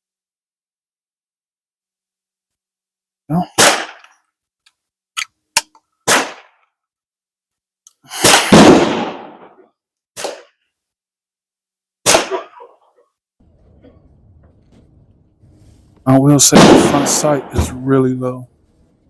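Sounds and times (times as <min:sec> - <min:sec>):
gunshots: 0:06.1 - 0:06.5, 0:08.2 - 0:09.6, 0:15.4 - 0:19.0.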